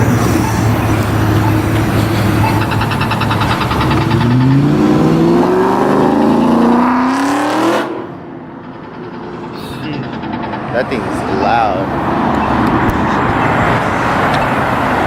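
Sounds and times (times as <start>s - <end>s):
car engine accelerating: 0.0s - 8.3s.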